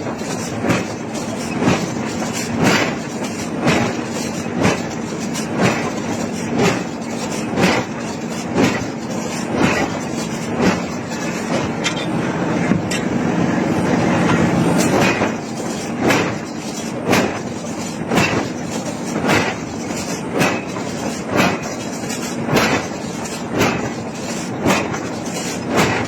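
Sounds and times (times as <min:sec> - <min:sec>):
steady machine hum: 0:00.0 - 0:26.0
forging hammer on hot iron: 0:08.6 - 0:13.2.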